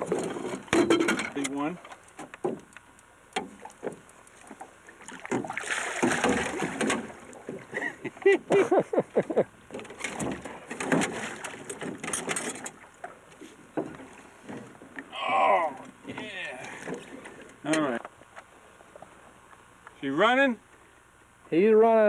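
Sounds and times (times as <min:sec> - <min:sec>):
knocks and clatter against boat: 0:00.0 - 0:02.8, 0:03.4 - 0:15.1, 0:15.7 - 0:19.1
water splashing: 0:03.4 - 0:17.6.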